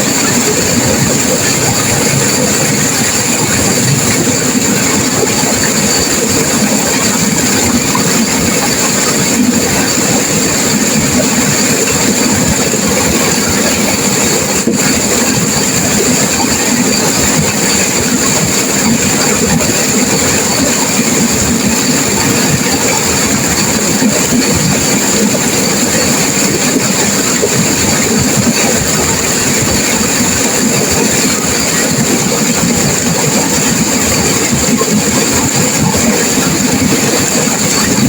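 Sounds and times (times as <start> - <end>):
river rushing over rapids: 0.0 - 38.0.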